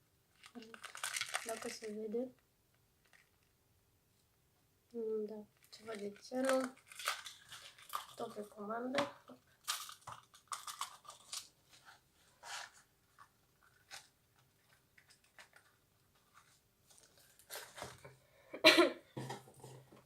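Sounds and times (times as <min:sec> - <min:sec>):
packaging crinkling and rustling: 0:00.3 - 0:02.0, 0:03.0 - 0:03.5, 0:05.6 - 0:08.6, 0:09.6 - 0:18.1.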